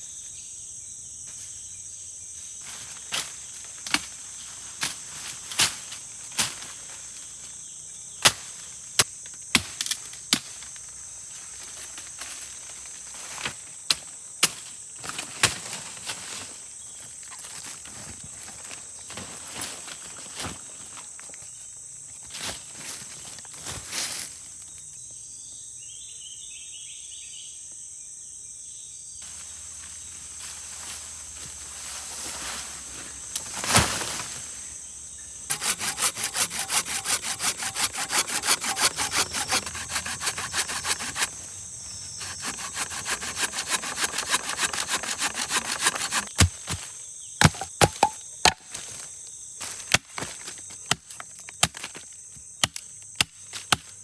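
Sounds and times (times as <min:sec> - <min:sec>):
high insect drone: 0:00.0 - 0:53.8
hand saw cutting wood: 0:35.5 - 0:46.5.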